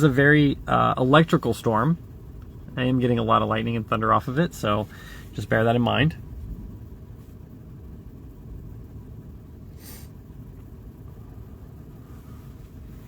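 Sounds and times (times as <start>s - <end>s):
vehicle engine rumbling: 0.0s - 13.0s
brief hiss: 9.7s - 10.2s.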